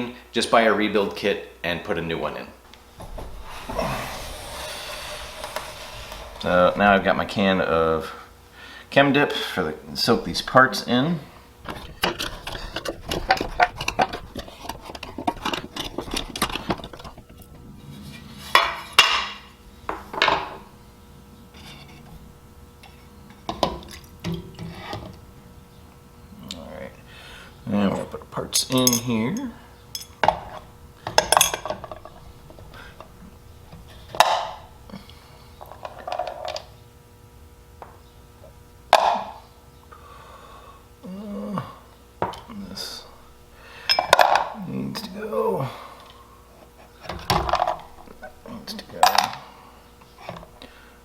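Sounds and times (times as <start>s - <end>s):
metal parts clinking and rattling: 28.6s - 30.3s.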